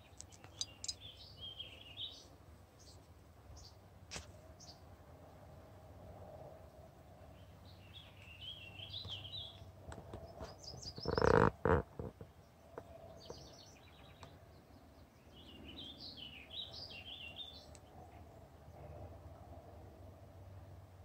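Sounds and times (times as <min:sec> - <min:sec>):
songbirds singing: 0:00.0 - 0:03.9, 0:04.6 - 0:04.9, 0:07.1 - 0:19.2.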